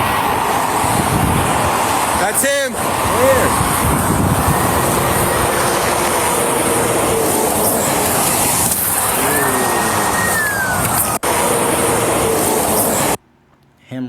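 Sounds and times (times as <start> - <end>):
highway traffic roar: 0.0 - 13.7
faint falling whine: 2.1 - 13.2.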